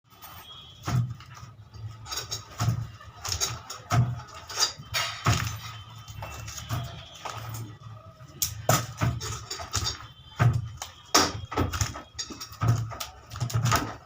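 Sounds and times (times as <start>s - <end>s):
tools knocking and clattering: 0.2s - 7.7s, 8.4s - 14.0s.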